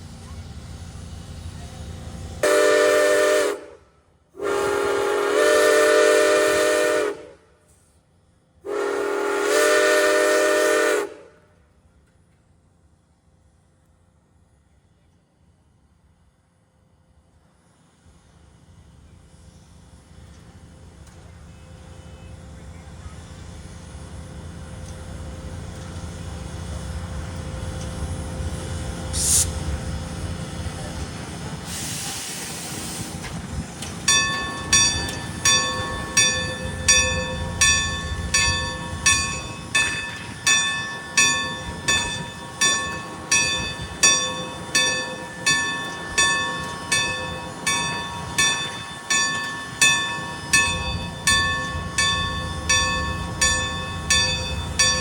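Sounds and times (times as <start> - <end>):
low train rumble: 0.0 - 55.0
short hisses: 29.1 - 29.6
railroad crossing bell ringing: 34.0 - 55.0.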